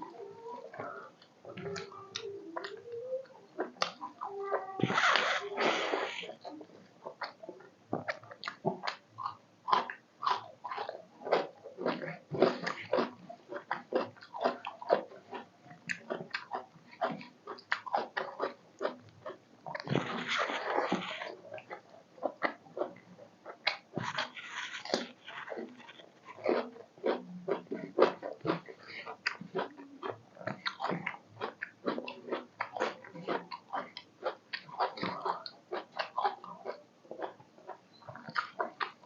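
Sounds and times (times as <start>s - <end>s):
wet chewing and lip smacking: 6.4s - 39.0s.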